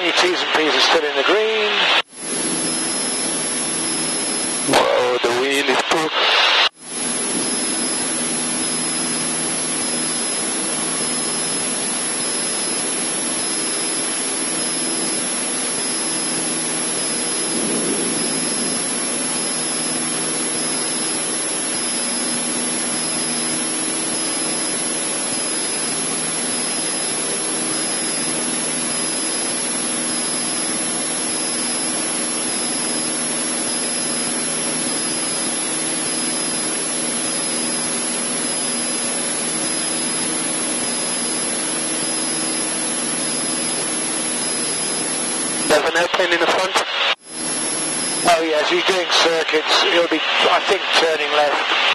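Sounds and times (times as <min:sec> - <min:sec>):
light aircraft engine droning: 0:06.8 - 0:45.9.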